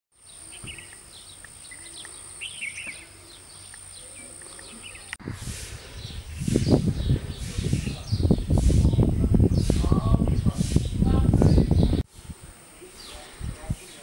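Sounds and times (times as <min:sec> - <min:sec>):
small birds chirping: 0:00.2 - 0:14.0
low rumble: 0:05.2 - 0:12.0.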